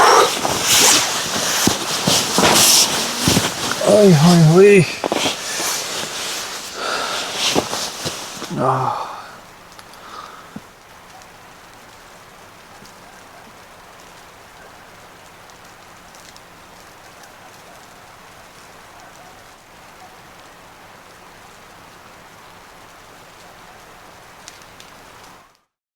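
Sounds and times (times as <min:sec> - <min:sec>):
snow hissing on tent fabric: 0:00.0 - 0:10.6.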